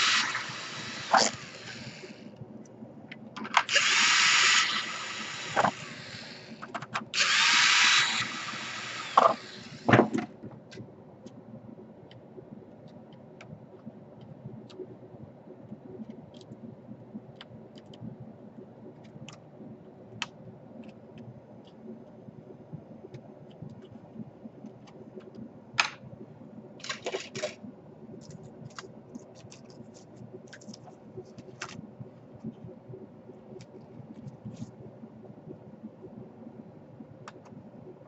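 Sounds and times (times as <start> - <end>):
electric screwdriver whirring: 0.0 - 2.1, 3.6 - 6.6, 7.2 - 9.9.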